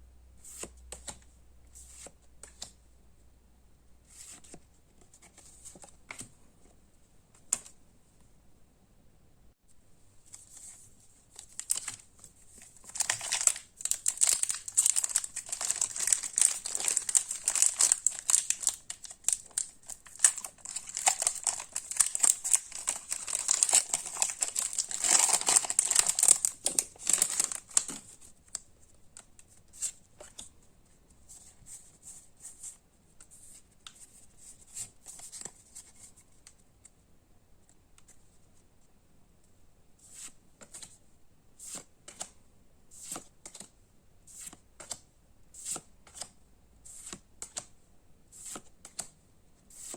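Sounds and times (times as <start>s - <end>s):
cards rustling and clicking: 10.3s - 28.4s
foil wrapper crinkling and tearing: 12.8s - 28.0s.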